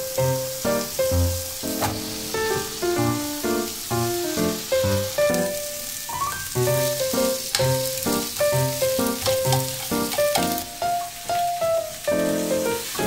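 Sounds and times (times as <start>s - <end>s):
vegetables sizzling in frying pan: 0.0s - 13.0s.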